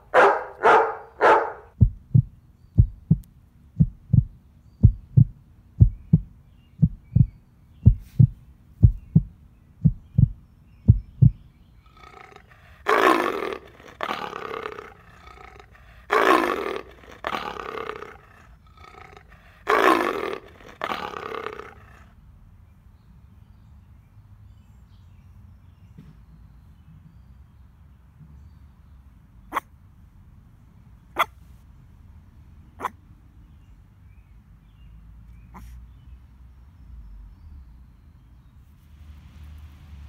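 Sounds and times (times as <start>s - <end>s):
low heartbeat thudding: 1.7s - 11.5s
low growl: 11.8s - 22.2s.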